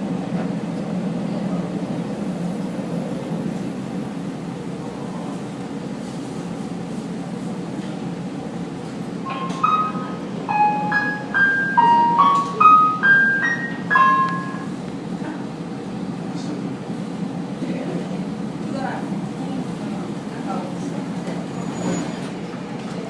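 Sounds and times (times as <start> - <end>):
train carriage rumble: 0.0 - 23.0
electronic chime melody: 9.3 - 14.7.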